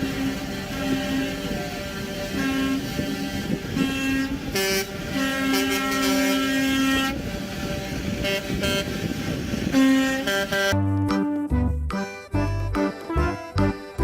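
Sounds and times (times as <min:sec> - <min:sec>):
vehicle horn tooting: 0:00.0 - 0:10.8
engine rumble: 0:00.0 - 0:14.0.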